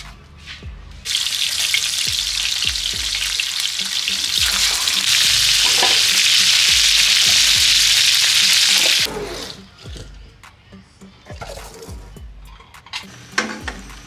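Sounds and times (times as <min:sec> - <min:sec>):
food sizzling in hot oil: 0:01.1 - 0:09.1.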